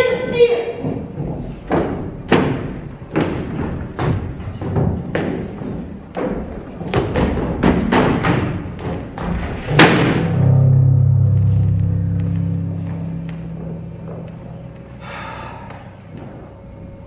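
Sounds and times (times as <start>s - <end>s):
heavy thumps: 6.2s - 15.1s.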